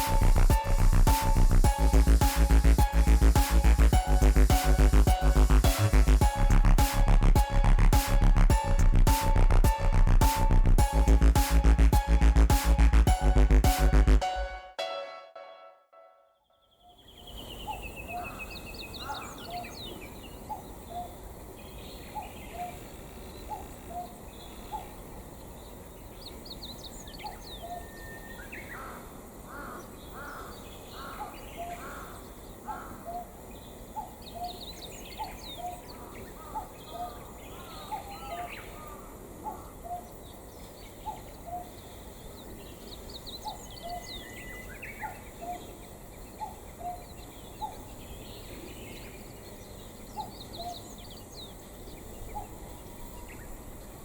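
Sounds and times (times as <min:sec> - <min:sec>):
harsh caws: 0:28.8 - 0:33.0.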